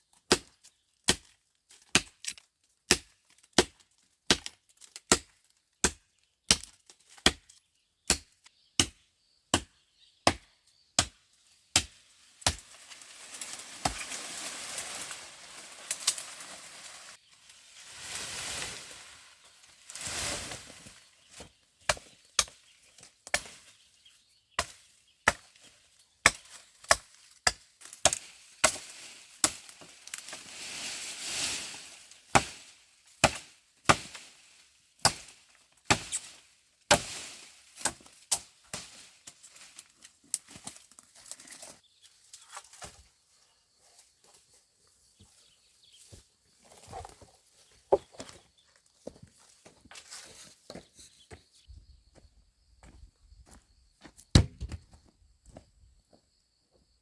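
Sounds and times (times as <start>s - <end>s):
rustling: 12.1s - 21.6s
chopping blows on wood: 54.3s - 54.8s.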